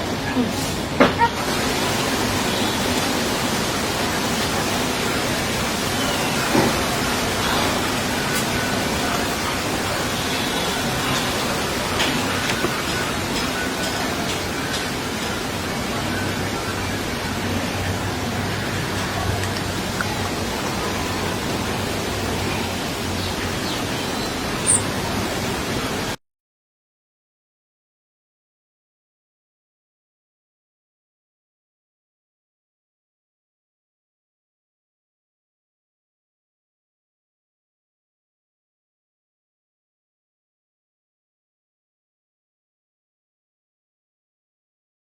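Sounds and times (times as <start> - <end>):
outdoor background hiss: 0.0 - 26.2
faint high bird calls: 23.2 - 25.0
faint high chirps: 23.6 - 24.9.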